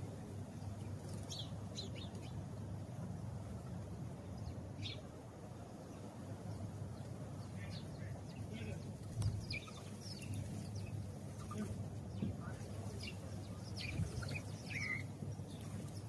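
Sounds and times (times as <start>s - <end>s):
sparrow chirping: 0.6s - 2.5s, 4.3s - 5.1s, 5.8s - 16.0s.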